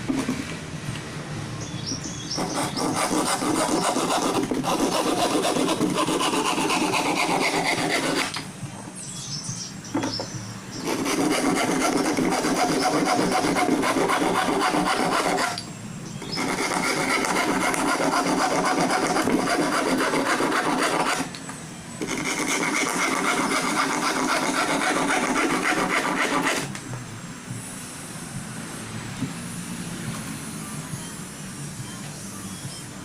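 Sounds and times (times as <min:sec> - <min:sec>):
file rasping on saw teeth: 0:02.3 - 0:08.4, 0:10.8 - 0:15.6, 0:16.2 - 0:21.4, 0:22.0 - 0:26.7.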